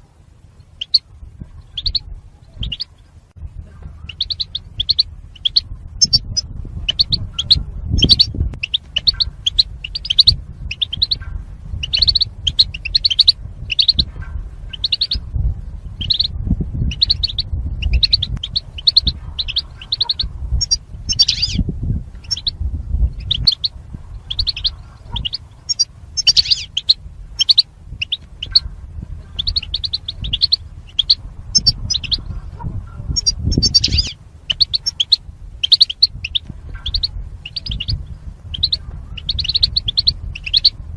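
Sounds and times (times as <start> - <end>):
low rumble: 0.0 - 40.9
goldfinch twittering: 1.7 - 2.9, 4.1 - 11.2, 11.8 - 14.1, 14.7 - 15.2, 16.0 - 16.3, 16.9 - 21.6, 22.2 - 22.6, 24.3 - 28.7, 29.4 - 32.3, 33.1 - 40.7.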